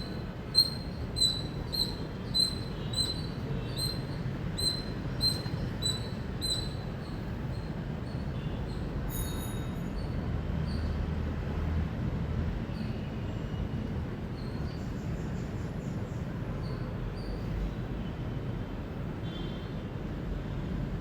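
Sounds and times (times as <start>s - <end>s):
squirrel chirping: 0.0s - 8.8s.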